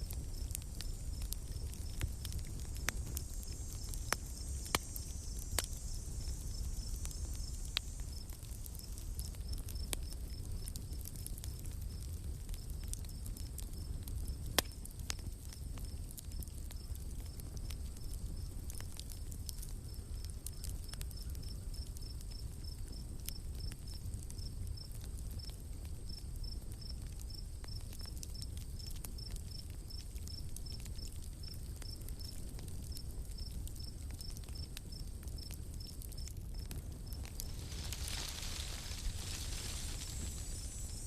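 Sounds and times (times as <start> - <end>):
high forest ambience hum: 0.0 - 10.0, 36.9 - 41.0
campfire crackling and popping: 0.0 - 41.0.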